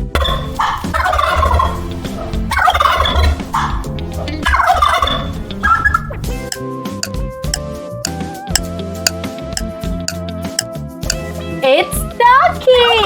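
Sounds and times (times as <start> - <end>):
turkey gobbling: 0.0 - 6.3.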